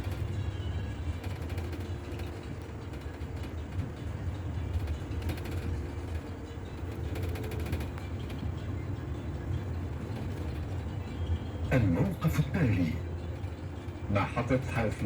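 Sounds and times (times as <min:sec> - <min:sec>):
bodywork rattling and clicking: 0:00.0 - 0:11.2
bus engine and road rumble: 0:00.0 - 0:15.0.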